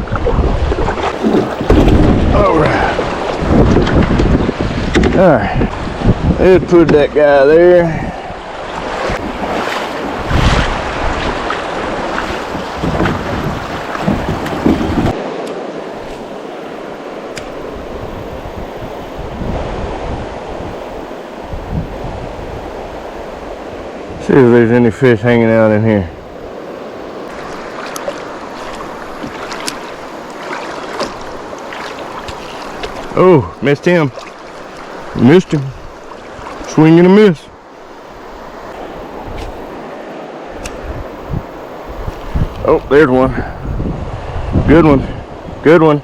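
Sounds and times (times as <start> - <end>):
short water splashes: 0.0 - 7.0, 7.8 - 16.4, 26.0 - 37.6
wind buffeting microphone: 0.0 - 15.2, 15.8 - 46.0
river water running: 0.0 - 46.0
river water rushing over rocks: 26.3 - 42.2.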